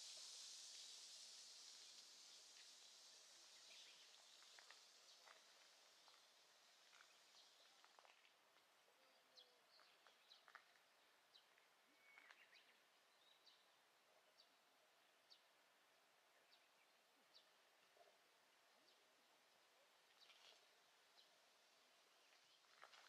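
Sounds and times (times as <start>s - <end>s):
soft high hiss: 0.0s - 23.0s
faint bird chirps: 11.6s - 14.6s.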